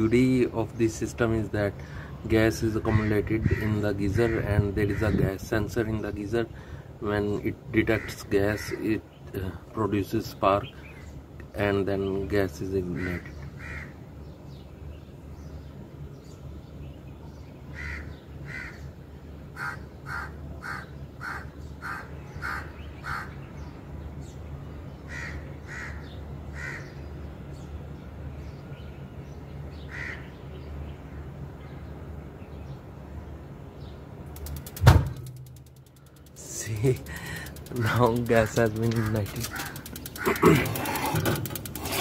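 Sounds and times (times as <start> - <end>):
bird calling: 17.7 - 23.8, 34.4 - 42.0
steady low hum: 30.3 - 42.0.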